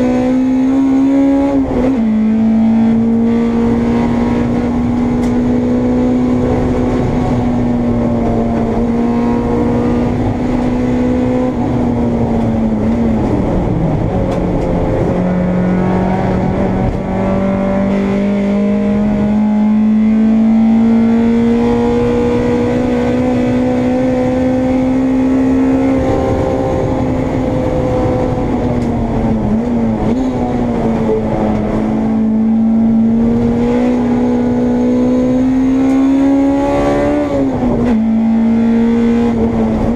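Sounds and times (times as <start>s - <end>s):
race car engine at high revs: 0.0s - 39.9s
road and wind noise: 0.0s - 39.9s.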